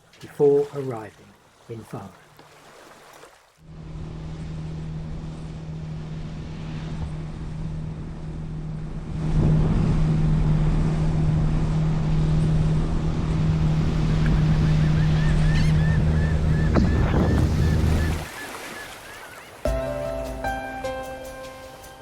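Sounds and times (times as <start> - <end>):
rushing water: 0.0 - 3.7, 13.4 - 20.5
wind on microphone: 13.1 - 18.3
diesel engine humming: 13.5 - 18.2.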